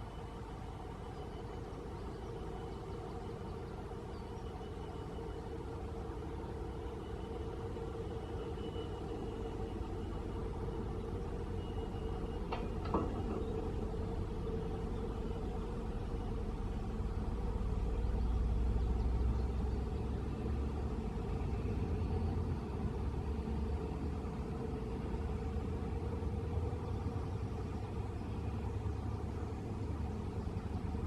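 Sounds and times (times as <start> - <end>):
vehicle engine rumbling: 0.0 - 31.0.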